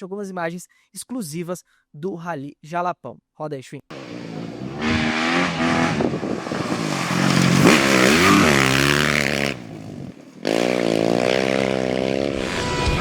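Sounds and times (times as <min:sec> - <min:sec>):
motorcycle engine revving: 0:03.9 - 0:13.0.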